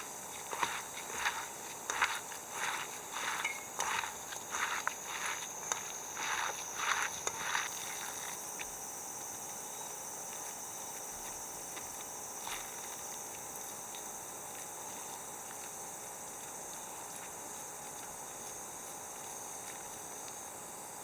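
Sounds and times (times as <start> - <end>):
footsteps: 0.3 - 7.7.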